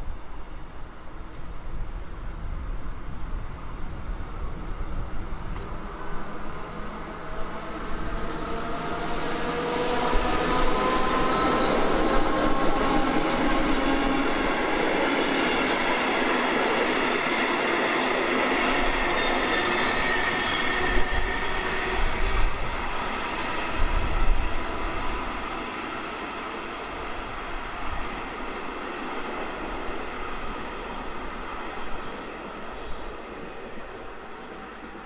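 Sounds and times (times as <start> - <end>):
shifting whine: 0.0 - 11.1.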